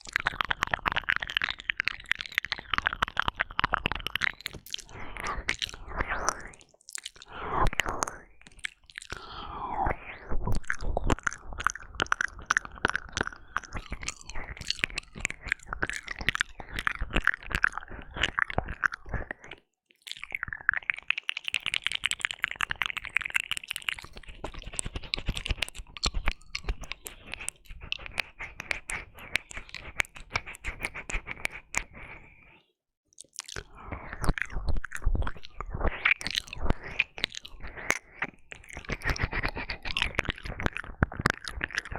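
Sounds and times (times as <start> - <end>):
wet licks smacks and clicks: 0.0 - 9.3, 10.5 - 32.2, 33.1 - 41.9.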